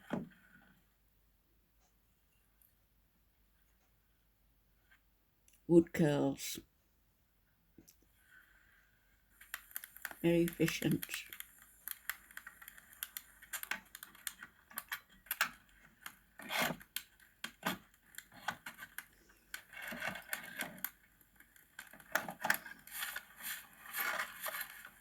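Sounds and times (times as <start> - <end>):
knife scraping wood: 16.4 - 16.9.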